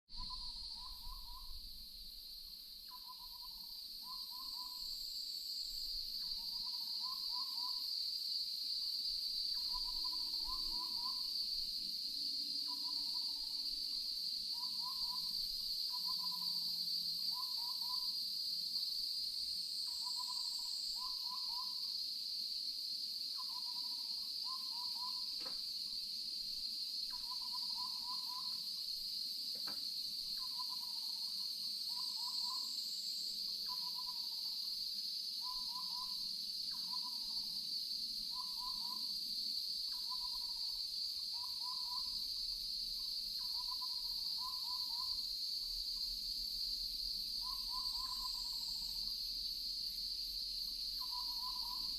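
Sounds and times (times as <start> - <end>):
owl hooting: 0.1 - 1.7, 2.9 - 4.8, 6.2 - 7.8, 9.6 - 11.2, 14.5 - 16.7, 17.3 - 18.1, 19.9 - 21.8, 23.4 - 25.3, 27.1 - 28.6, 30.4 - 31.3, 31.9 - 32.7, 33.6 - 34.4, 35.4 - 37.4, 47.4 - 49.0, 51.0 - 51.9
high-pitched insect chorus: 0.1 - 51.9.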